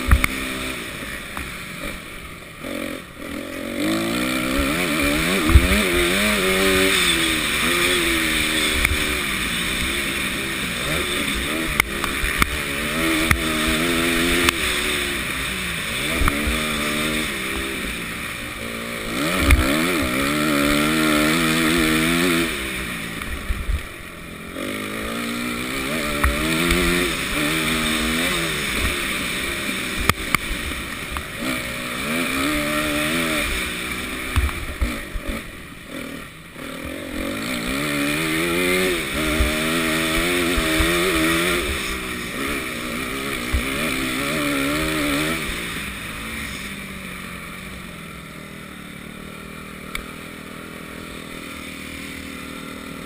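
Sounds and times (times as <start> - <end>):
motocross bike engine revving: 0.0 - 53.0
knocks from rough track: 5.3 - 6.0.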